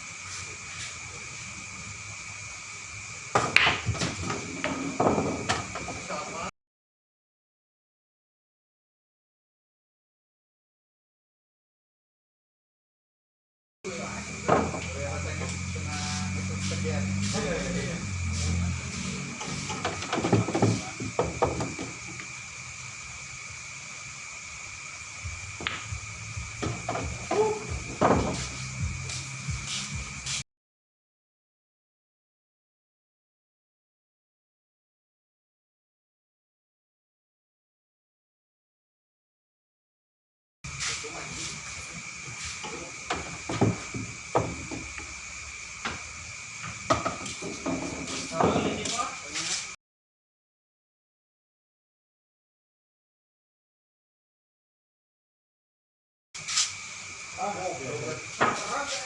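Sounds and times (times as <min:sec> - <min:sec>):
billiard balls clacking: 0:03.4 - 0:06.1, 0:19.7 - 0:22.0, 0:25.6 - 0:25.9, 0:26.6 - 0:28.5
steady high hum: 0:13.9 - 0:21.0, 0:21.8 - 0:30.4.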